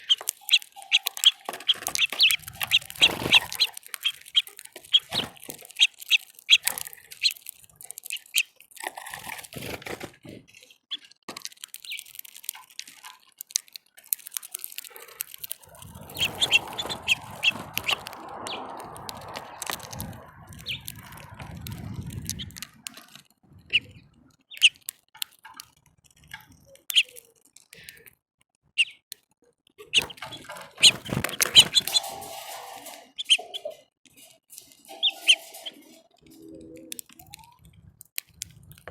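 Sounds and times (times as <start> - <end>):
songbirds chirping: 0.0 - 10.0, 10.9 - 27.9, 29.8 - 38.9
low rumbling noise: 15.6 - 24.4.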